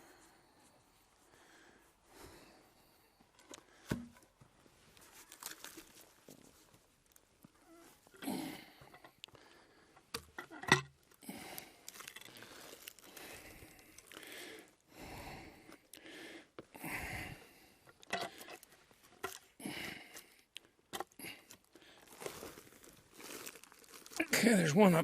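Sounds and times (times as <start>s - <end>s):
rustling and crunching handling noises: 3.3s - 8.2s, 10.5s - 14.4s, 20.9s - 25.0s.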